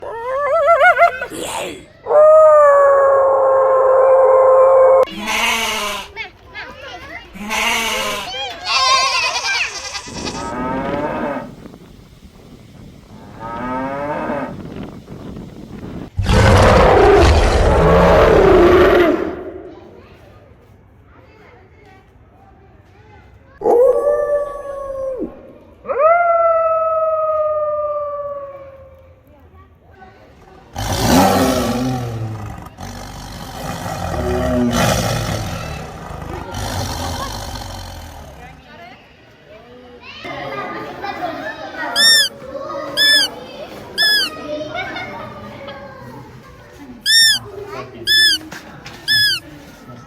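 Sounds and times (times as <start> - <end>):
goat bleating: 7.4 - 10.4, 43.0 - 43.3, 44.0 - 44.3, 49.1 - 49.4
large wild animal roaring: 16.2 - 19.5, 30.8 - 38.4.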